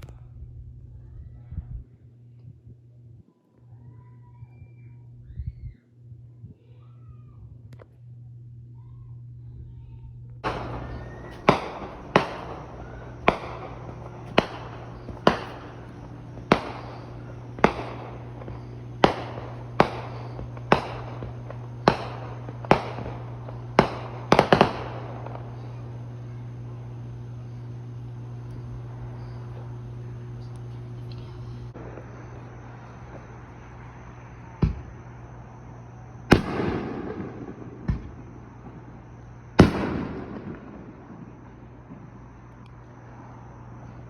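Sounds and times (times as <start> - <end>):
steady low hum: 0.0 - 44.0
fireworks banging: 7.8 - 42.6.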